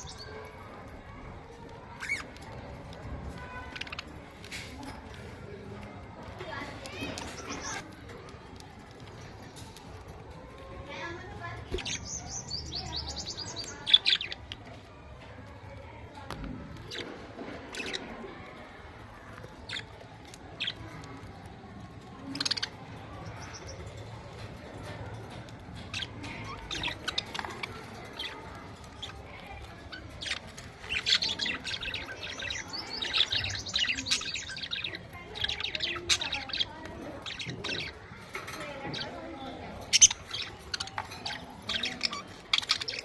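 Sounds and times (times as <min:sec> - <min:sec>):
budgerigars chirping and warbling: 0:00.0 - 0:05.4, 0:06.4 - 0:07.9, 0:11.6 - 0:14.8, 0:16.8 - 0:18.2, 0:19.4 - 0:21.2, 0:22.2 - 0:43.0.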